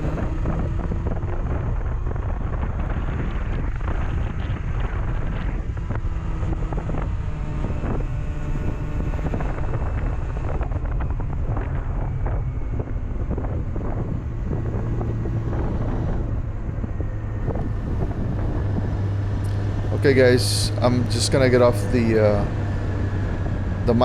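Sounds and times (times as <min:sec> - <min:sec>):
motorcycle engine running: 0:00.0 - 0:24.0
wind buffeting microphone: 0:00.0 - 0:24.0.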